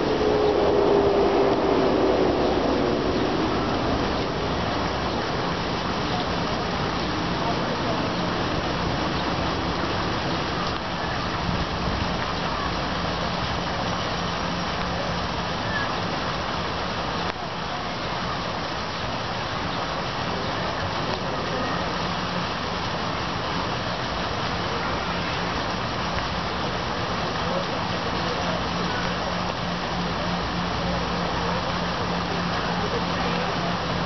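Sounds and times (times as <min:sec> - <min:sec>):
low steady hum: 0:00.0 - 0:12.7
steady rain: 0:00.0 - 0:34.0.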